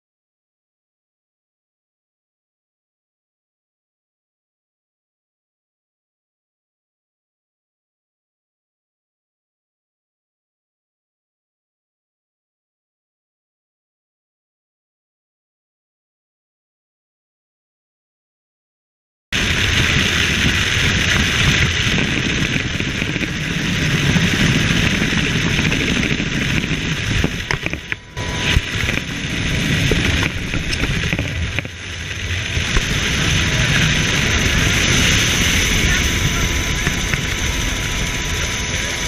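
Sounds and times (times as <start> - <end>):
helicopter rotor and turbine: 19.4 - 39.0.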